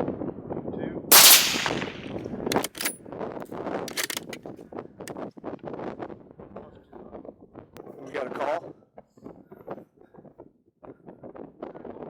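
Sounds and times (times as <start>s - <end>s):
rifle shot: 1.1s - 2.9s.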